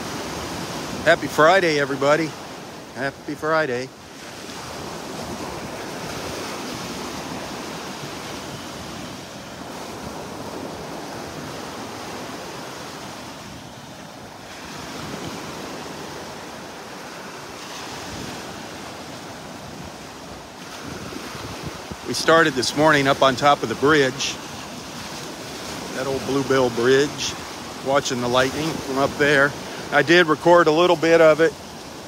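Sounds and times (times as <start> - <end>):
surf washing onto beach: 0.0 - 32.0
wind on microphone: 4.3 - 23.8.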